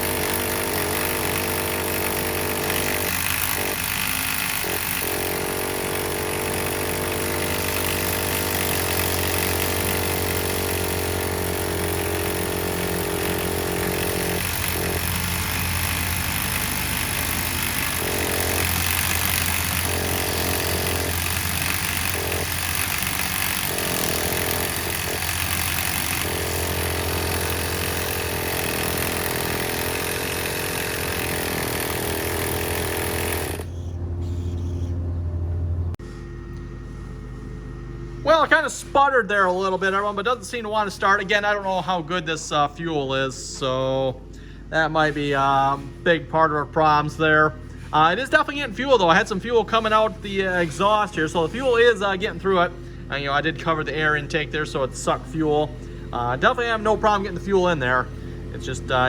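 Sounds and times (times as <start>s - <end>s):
impact driver running: 0.0s - 34.6s, 45.0s - 59.0s.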